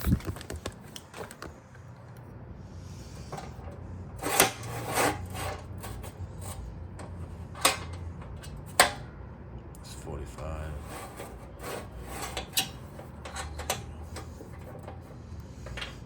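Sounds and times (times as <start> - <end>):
scraping rub: 3.0 - 8.5, 10.7 - 16.0.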